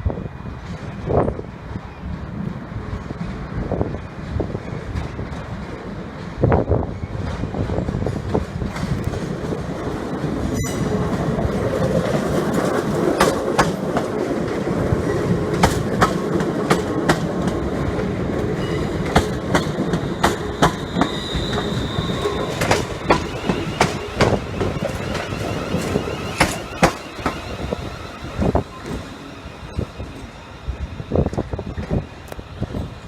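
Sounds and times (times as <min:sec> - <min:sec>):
train rumbling: 0:00.0 - 0:33.0
wheels clicking over rail joints: 0:07.2 - 0:33.0
high wheel squeal: 0:10.5 - 0:11.7, 0:18.5 - 0:33.0.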